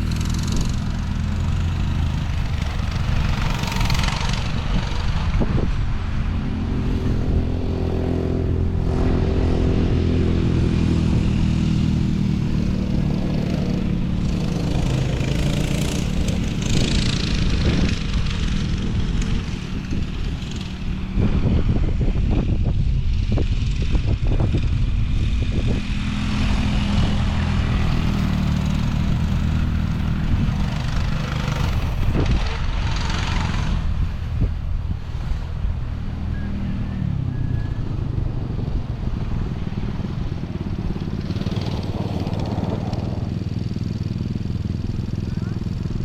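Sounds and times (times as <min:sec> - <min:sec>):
off-road vehicle engine running: 0:00.0 - 0:46.0
wind and terrain noise: 0:00.0 - 0:46.0.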